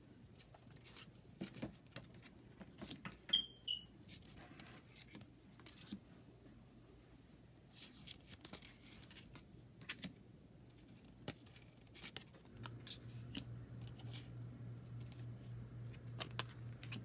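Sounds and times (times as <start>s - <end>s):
cards and packaging rustling: 7.7s - 17.0s
low steady hum: 9.3s - 17.0s.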